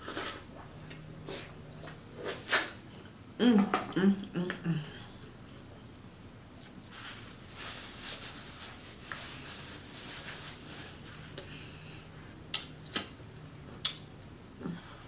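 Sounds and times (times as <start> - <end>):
sharp mouth clicks: 12.5 - 13.1, 13.8 - 14.3
wet chewing and lip smacks: 12.5 - 14.4.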